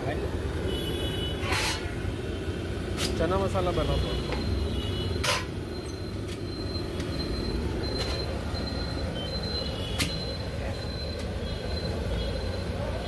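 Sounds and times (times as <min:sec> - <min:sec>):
high wheel squeal: 0:01.4 - 0:02.0.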